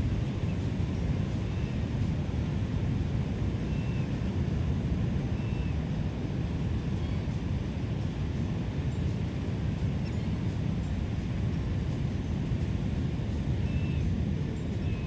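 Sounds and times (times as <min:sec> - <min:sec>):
low outdoor rumble: 0:00.0 - 0:15.0
faint high bird chirps: 0:13.7 - 0:14.1.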